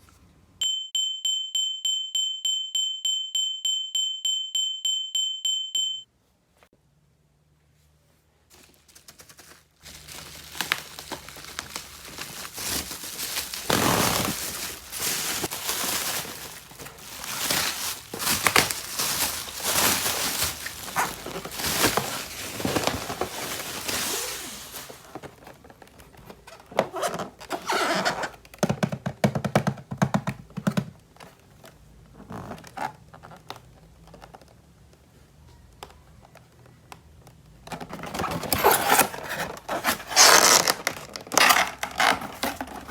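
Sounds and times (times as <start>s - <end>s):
plastic packaging rustling: 8.5s - 28.3s, 37.7s - 42.9s.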